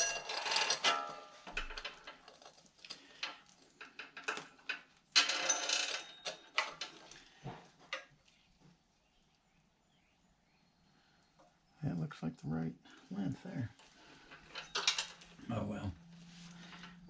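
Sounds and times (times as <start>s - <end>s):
metal chain links clinking: 0.0s - 7.2s, 14.2s - 15.5s
metal chain rattling: 0.0s - 7.3s, 13.8s - 15.6s.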